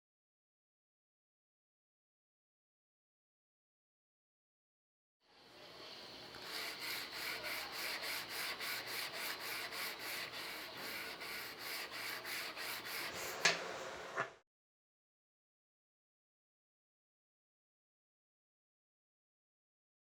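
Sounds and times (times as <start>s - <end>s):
scrubbing on metal: 6.4s - 13.4s.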